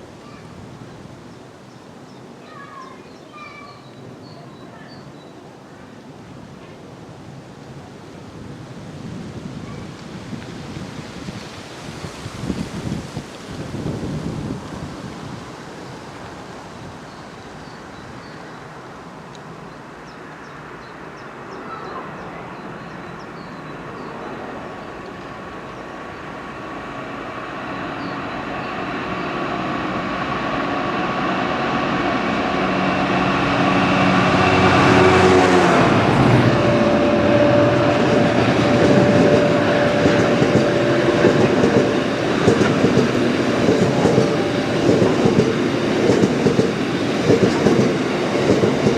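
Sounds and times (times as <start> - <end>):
train passing at speed: 0.0 - 48.9
train whine: 13.4 - 48.9.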